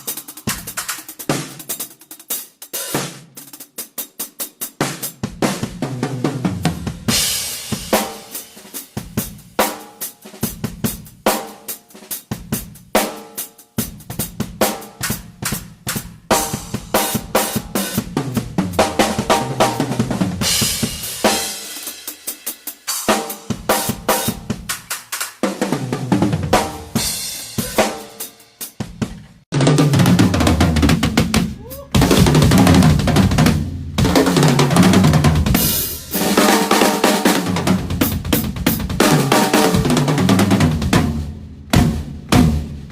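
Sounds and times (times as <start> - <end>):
hi-hat: 0.0 - 2.7
snare and tom strokes: 0.0 - 42.9
bass drum: 5.3 - 8.1, 13.8 - 21.5, 25.6 - 28.0, 28.8 - 36.4, 37.4 - 42.9.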